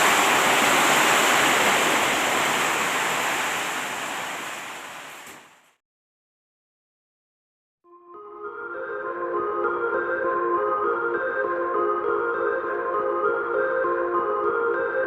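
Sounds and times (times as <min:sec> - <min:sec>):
heavy rain with wind: 0:00.0 - 0:05.6.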